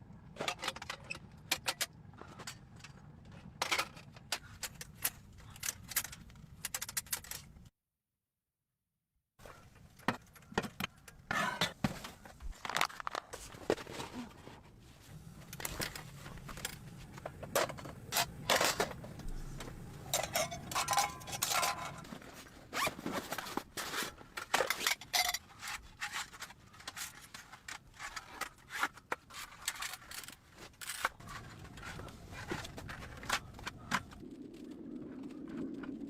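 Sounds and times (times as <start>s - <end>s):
gear handling scrapes and rustles: 11.3s - 34.2s.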